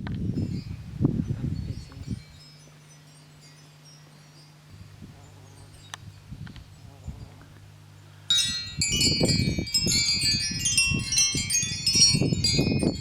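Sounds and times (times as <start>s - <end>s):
wind chimes ringing: 0.3s - 7.4s, 8.3s - 13.0s
low wind rumble: 8.3s - 13.0s.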